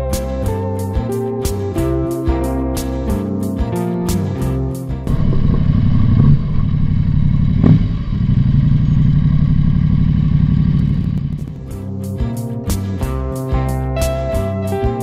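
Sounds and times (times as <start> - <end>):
motorcycle engine running: 5.0 - 12.1.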